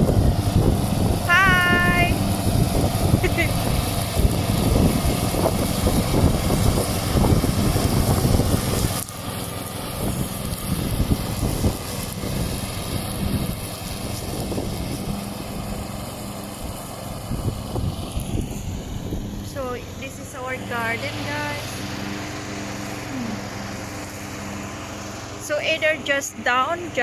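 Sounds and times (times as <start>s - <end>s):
lawn mower engine running: 0.0s - 27.0s.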